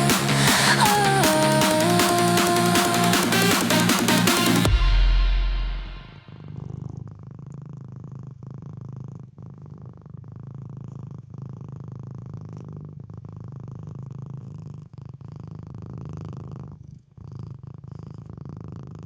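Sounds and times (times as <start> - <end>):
cat purring: 6.4 - 19.0.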